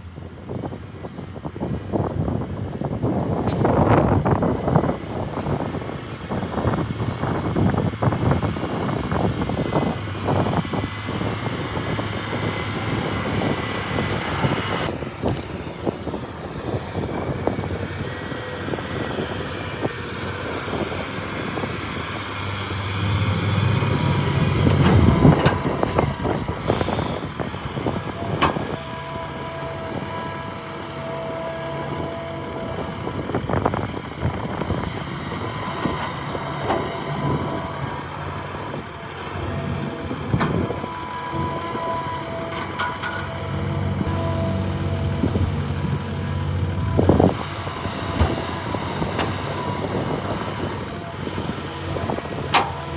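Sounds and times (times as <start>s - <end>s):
excavator diesel engine under load: 0.0s - 52.9s
clanking and rattling: 20.5s - 28.8s, 42.4s - 44.1s.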